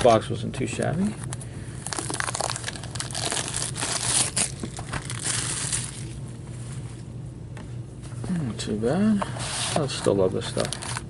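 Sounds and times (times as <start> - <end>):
plastic wrapping crinkling and tearing: 1.8 - 6.2.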